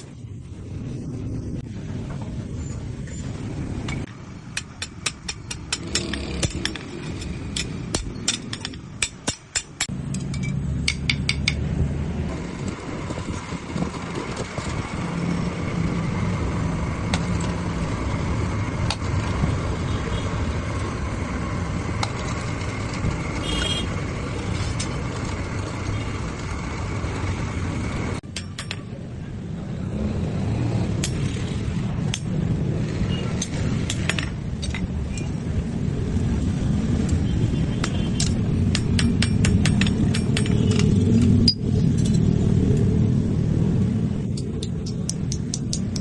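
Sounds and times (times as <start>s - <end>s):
hammer striking steel: 4.5s - 11.7s, 28.2s - 29.0s, 37.8s - 42.2s.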